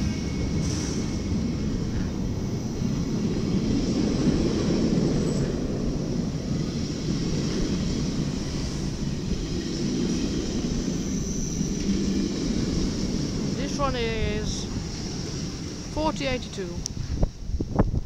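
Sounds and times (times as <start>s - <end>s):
electric train rumbling past: 0.0s - 18.0s.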